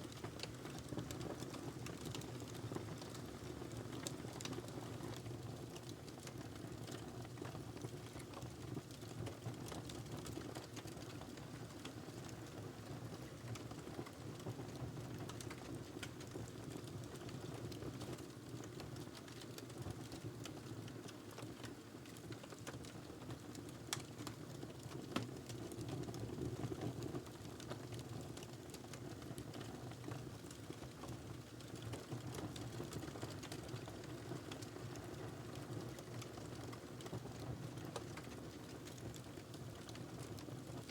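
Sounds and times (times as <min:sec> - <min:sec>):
wood fire crackling: 0:27.5 - 0:35.3.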